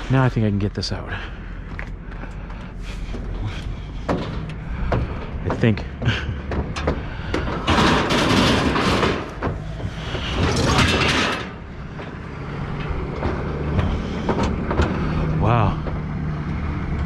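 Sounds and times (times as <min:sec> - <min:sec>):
low engine hum: 0:00.0 - 0:17.0
metal knocks: 0:04.0 - 0:16.2
scrap metal scraping: 0:07.5 - 0:15.2.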